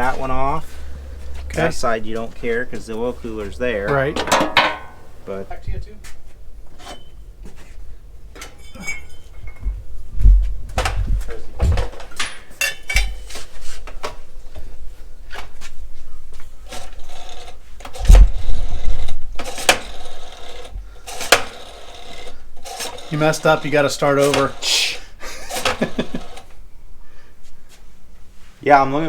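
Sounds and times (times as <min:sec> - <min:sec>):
heavy thumps: 0:00.6 - 0:05.9, 0:09.6 - 0:12.4
metal tools clanking on workbench: 0:03.7 - 0:05.4, 0:08.4 - 0:09.6, 0:12.1 - 0:13.3.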